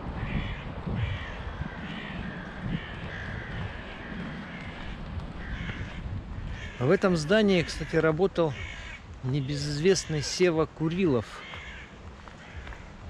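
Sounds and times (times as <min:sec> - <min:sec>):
low rumble: 0:00.0 - 0:06.8
bird calling: 0:00.0 - 0:13.0.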